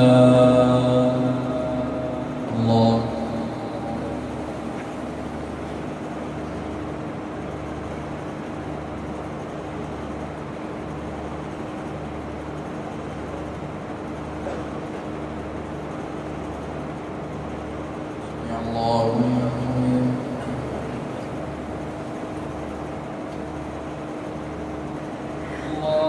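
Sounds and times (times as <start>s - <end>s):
low pulsing throb: 0.0s - 6.8s
constant low tone: 0.0s - 7.8s
mechanical hum and hiss: 0.0s - 26.0s.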